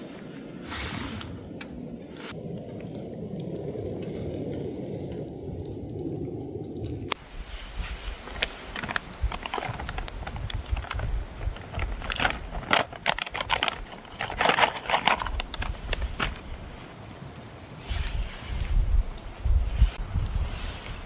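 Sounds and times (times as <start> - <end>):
rustling and crinkling: 7.1 - 21.0.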